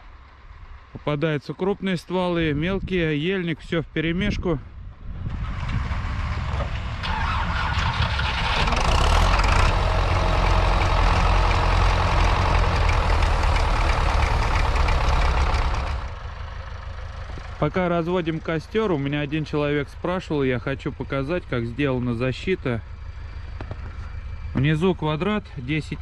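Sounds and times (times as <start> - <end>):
tractor diesel engine revving: 5.2 - 26.0.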